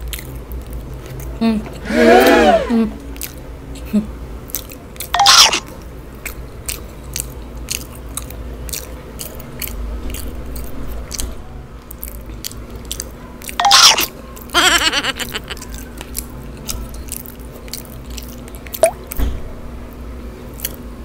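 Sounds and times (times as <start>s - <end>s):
chewing and biting fried food: 0.0s - 1.8s, 3.1s - 19.2s, 20.2s - 21.0s
wet mouth clicks: 15.3s - 19.2s.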